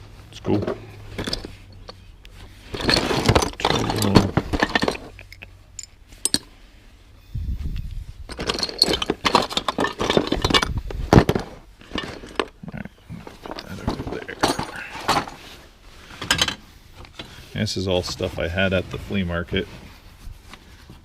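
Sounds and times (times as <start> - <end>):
small hard objects clinking: 1.1 - 6.5, 8.3 - 15.4.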